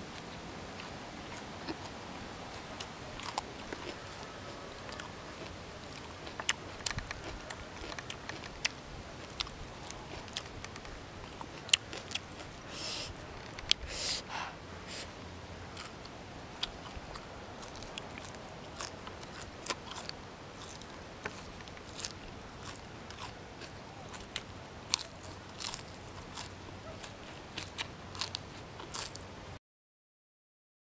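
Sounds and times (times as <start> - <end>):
crunching leafy greens: 0.0 - 29.6
wet mouth clicks: 6.3 - 8.7.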